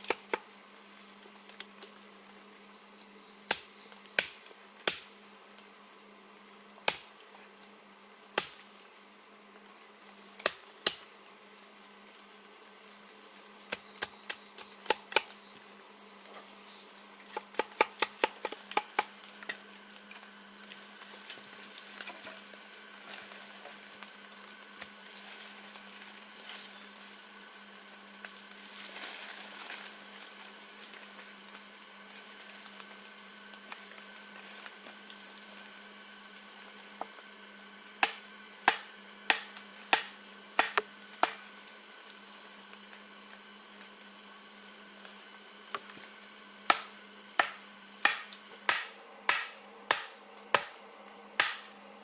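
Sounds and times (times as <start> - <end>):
high-pitched insect drone: 11.1 - 52.0
sharp knocks: 47.4 - 50.7.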